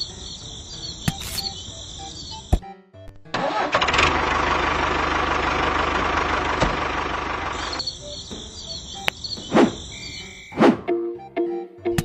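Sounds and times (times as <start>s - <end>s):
engine running with low hum: 3.4s - 9.2s.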